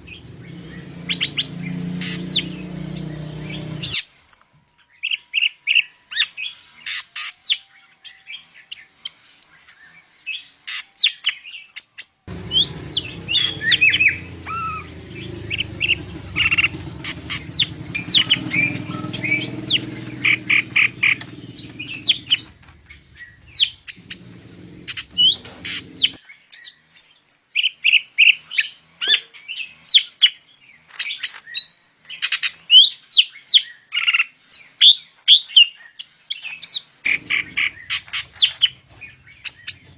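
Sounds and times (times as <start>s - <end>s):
bird singing high chirps and whistles: 17.3s - 25.4s.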